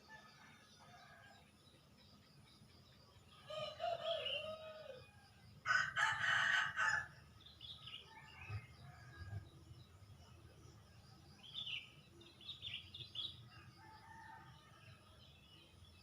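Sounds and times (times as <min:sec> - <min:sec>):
rooster crowing: 0:05.7 - 0:07.1
small birds chirping: 0:07.2 - 0:14.4.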